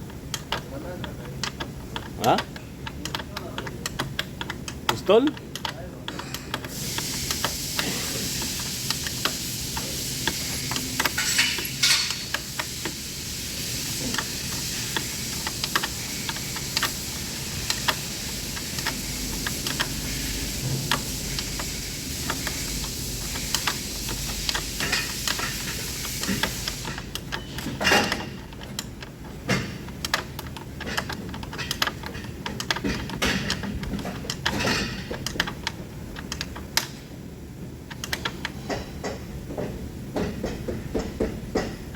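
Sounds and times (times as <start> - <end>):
steady hiss: 6.0 - 39.4.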